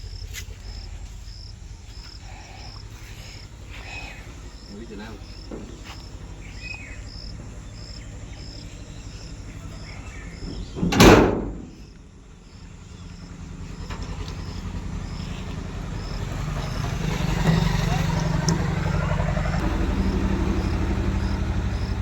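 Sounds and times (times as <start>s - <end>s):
faint high chirping: 0.0s - 10.9s
farm machine engine rumbling: 0.0s - 22.0s.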